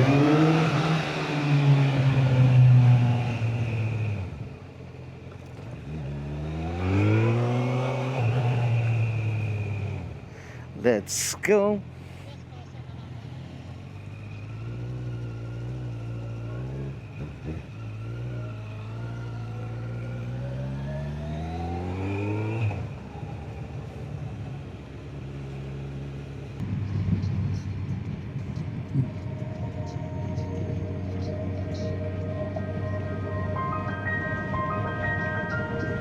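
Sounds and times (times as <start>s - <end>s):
motorcycle engine accelerating: 0.0s - 10.8s, 11.8s - 36.0s
wind noise on microphone: 26.6s - 29.7s.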